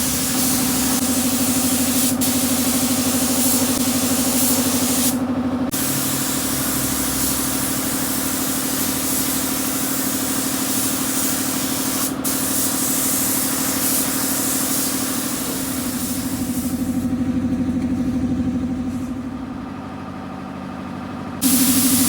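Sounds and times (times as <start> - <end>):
air spray gun hissing: 0.0 - 17.1, 21.4 - 22.0
machine hum: 15.9 - 22.0.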